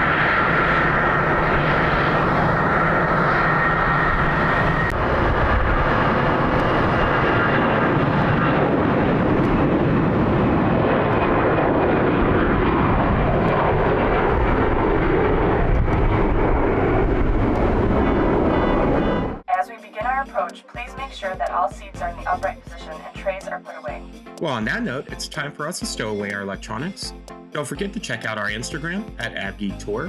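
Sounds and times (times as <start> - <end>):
jet engines at high power: 0.0 - 19.5.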